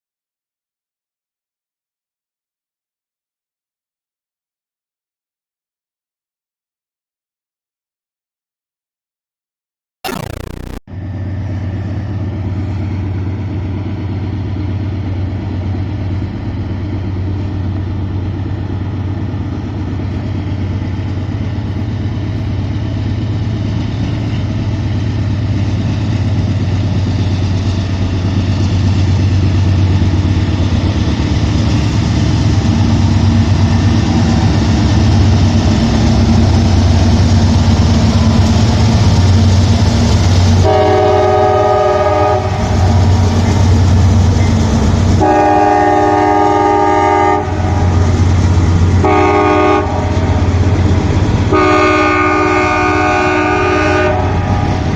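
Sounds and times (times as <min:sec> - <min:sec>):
high steady tone: 0:10.1 - 0:10.8
diesel locomotive engine rumble: 0:11.0 - 0:54.9.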